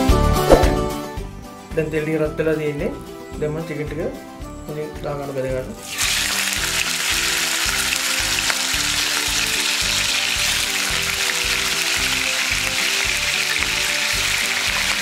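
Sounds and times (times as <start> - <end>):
background music with beat: 0.0 - 15.0
chicken frying in oil: 5.8 - 15.0.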